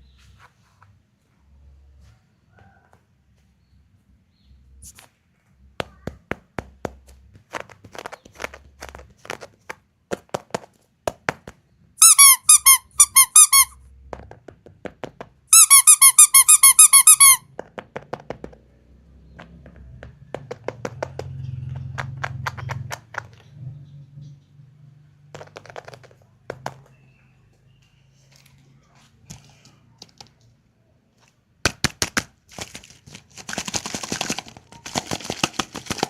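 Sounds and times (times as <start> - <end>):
rapid high squeaks: 12.0 - 13.8, 15.5 - 17.4
handling clicks and taps: 19.3 - 23.5.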